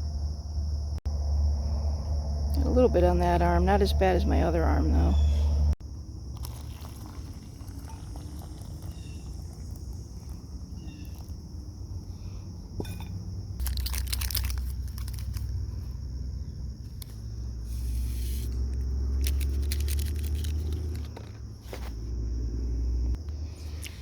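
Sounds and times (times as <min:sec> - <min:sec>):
insects trilling: 0:00.0 - 0:24.0
crinkling handling noise: 0:12.8 - 0:16.1, 0:16.8 - 0:22.1.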